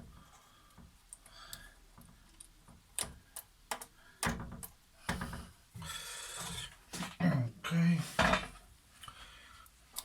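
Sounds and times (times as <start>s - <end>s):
plastic parts clicking and knocking: 0.0s - 5.5s.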